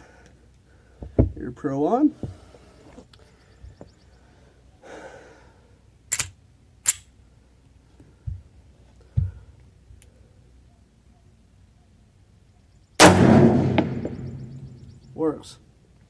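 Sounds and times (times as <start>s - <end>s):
pistol metallic clicks: 6.1s - 7.1s
dull low thumps: 13.0s - 15.2s.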